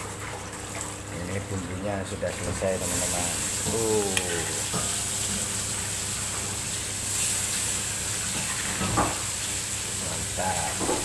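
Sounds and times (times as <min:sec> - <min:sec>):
spice paste sizzling in oil: 0:02.8 - 0:10.8.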